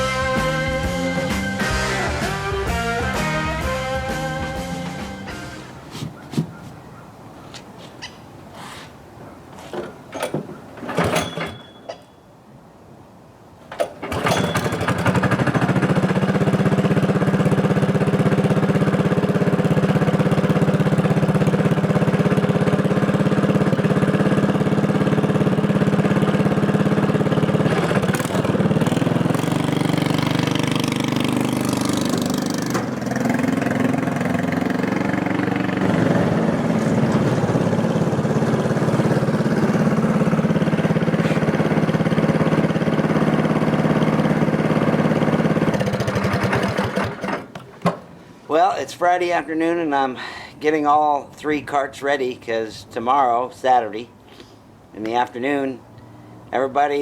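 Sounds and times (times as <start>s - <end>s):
small engine running: 14.0s - 47.5s.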